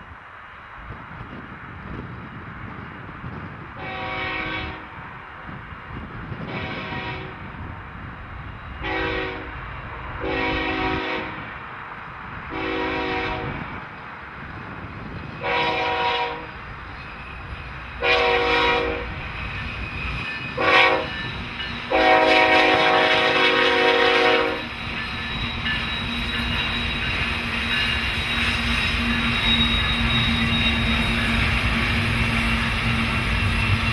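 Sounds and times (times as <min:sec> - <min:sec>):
train rumble: 0:00.0 - 0:33.9
train air horn blasts: 0:03.8 - 0:05.0, 0:06.4 - 0:07.4, 0:08.8 - 0:09.6, 0:10.2 - 0:11.5, 0:12.5 - 0:13.6, 0:15.4 - 0:16.5, 0:18.0 - 0:19.2, 0:20.6 - 0:21.2, 0:21.9 - 0:24.7.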